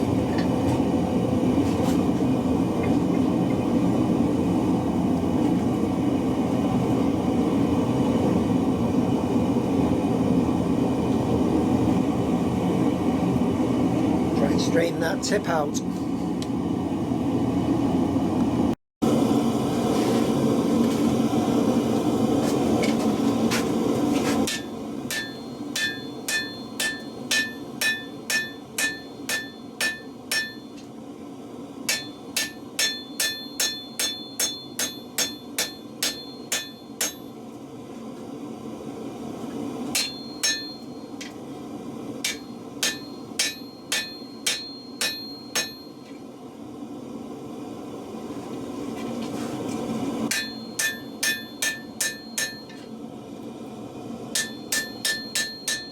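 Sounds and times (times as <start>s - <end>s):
hammer striking hot steel on anvil: 24.4s - 30.9s, 31.8s - 37.4s, 39.9s - 41.4s, 42.2s - 46.2s, 50.3s - 52.9s, 54.3s - 55.9s.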